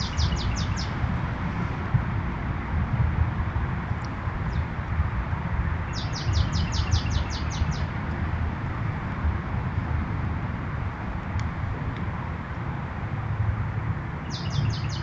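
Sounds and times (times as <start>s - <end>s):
bird chirps: 0.0s - 1.0s, 5.9s - 7.9s, 14.2s - 15.0s
bird singing: 0.0s - 1.0s, 5.9s - 7.9s, 14.2s - 15.0s
steady low rumble: 0.0s - 15.0s.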